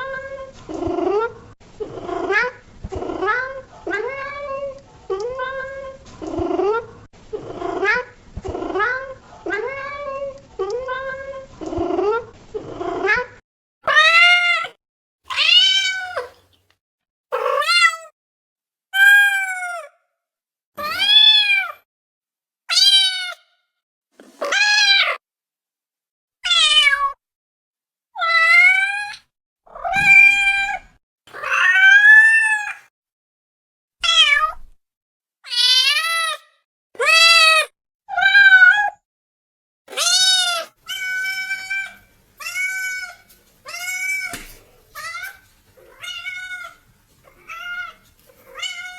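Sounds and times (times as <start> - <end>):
cat meowing: 13.9 - 16.4, 17.3 - 18.1, 20.8 - 21.8, 22.7 - 23.4, 24.4 - 25.2, 26.4 - 27.2, 28.2 - 32.9, 34.0 - 34.7, 35.4 - 36.4, 37.0 - 39.0, 39.9 - 48.9.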